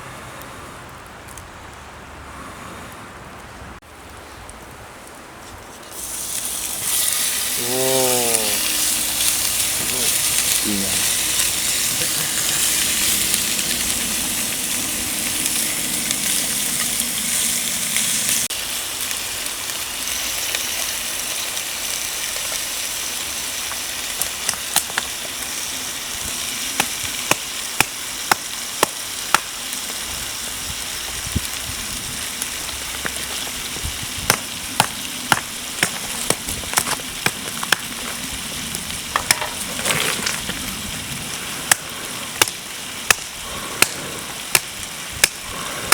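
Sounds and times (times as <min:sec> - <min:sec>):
food sizzling in a pan: 0:05.9 - 0:37.3.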